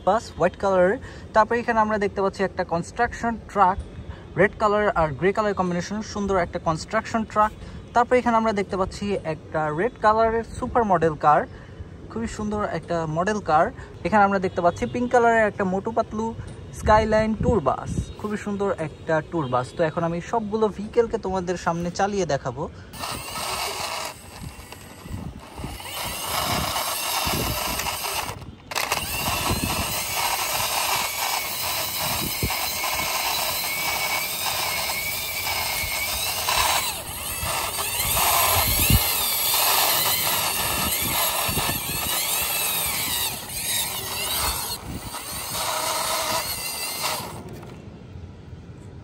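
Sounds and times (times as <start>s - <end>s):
toy wheels scraping along a wall: 22.9s - 47.8s.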